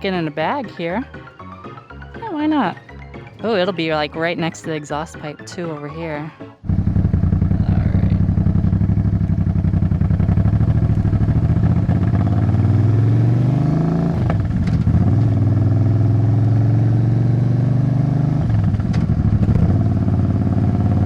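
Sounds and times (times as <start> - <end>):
motorcycle engine revving: 6.6 - 21.0.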